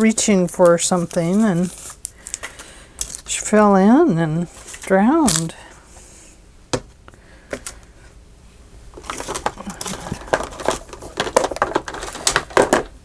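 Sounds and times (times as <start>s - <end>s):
paper rustling and crinkling: 0.4s - 3.4s, 4.5s - 5.5s, 8.9s - 13.0s.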